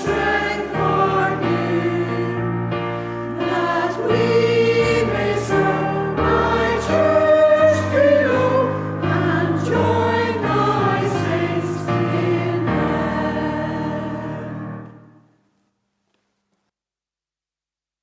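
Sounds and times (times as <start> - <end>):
choir singing: 0.0 - 15.1.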